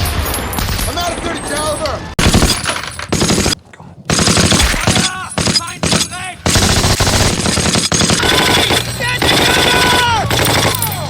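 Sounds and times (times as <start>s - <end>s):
rapid automatic gunfire: 2.2s - 11.0s.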